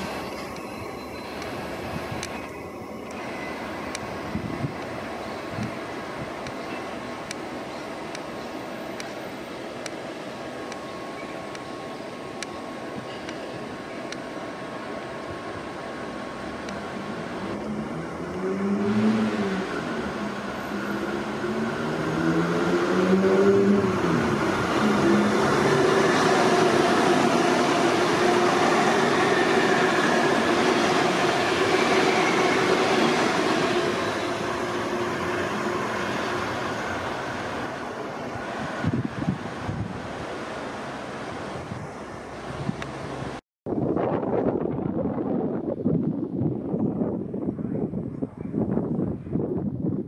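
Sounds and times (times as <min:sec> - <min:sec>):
train passing rumble and hiss: 0:00.0 - 0:43.4
train motor whine: 0:16.6 - 0:39.8.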